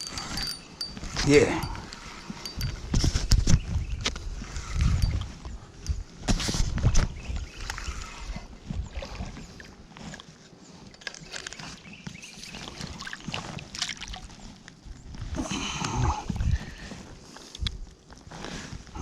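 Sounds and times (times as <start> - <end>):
water sloshing: 7.6 - 14.8.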